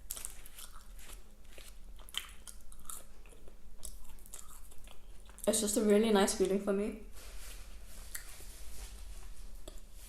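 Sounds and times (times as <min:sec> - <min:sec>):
person chewing and biting food: 0:00.0 - 0:05.5.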